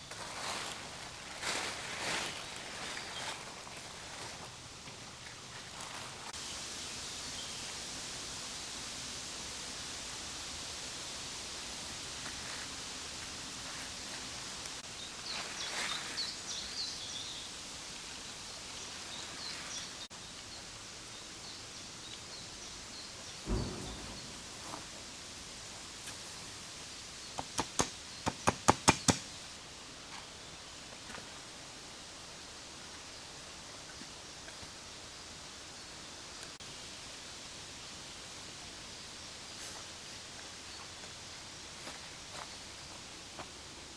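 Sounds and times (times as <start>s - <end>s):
steady outdoor hiss: 0.0s - 43.9s
light rustling: 23.4s - 26.2s
sharp knocks: 23.5s - 25.1s
thump: 23.5s - 25.1s.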